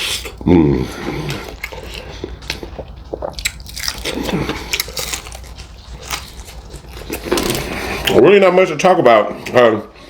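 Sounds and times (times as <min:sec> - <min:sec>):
wet chewing: 0:00.0 - 0:08.2
crunching fried chicken: 0:00.9 - 0:08.2.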